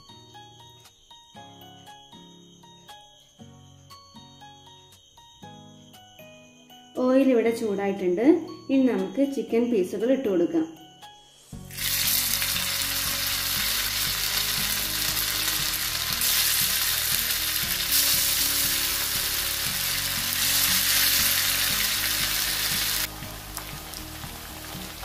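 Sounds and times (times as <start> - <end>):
chicken sizzling in hot oil: 11.6 - 25.0.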